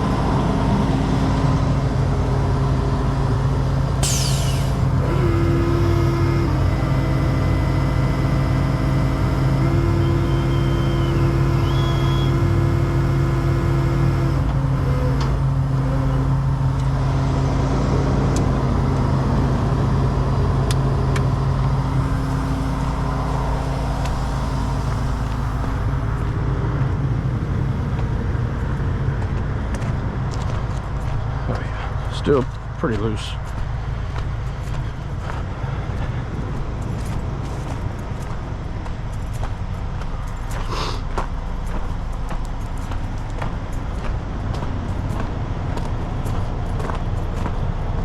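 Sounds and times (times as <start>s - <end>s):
diesel truck engine running: 0.0s - 48.0s
engine whine: 0.0s - 48.0s.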